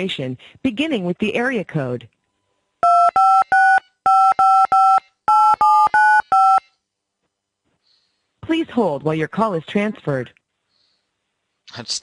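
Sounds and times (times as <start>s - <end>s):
telephone keypad beeps: 2.8s - 6.7s.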